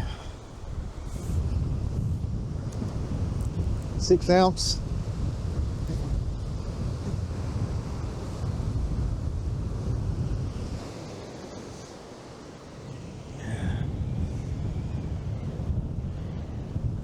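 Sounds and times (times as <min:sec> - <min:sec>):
surf breaking on beach: 0:00.0 - 0:17.0
wind buffeting microphone: 0:00.0 - 0:17.0.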